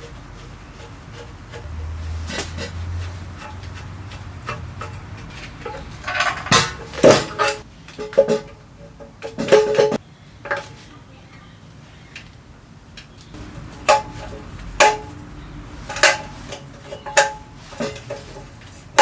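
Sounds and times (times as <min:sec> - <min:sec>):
metal parts clanking: 0:03.4 - 0:08.5, 0:15.8 - 0:19.0.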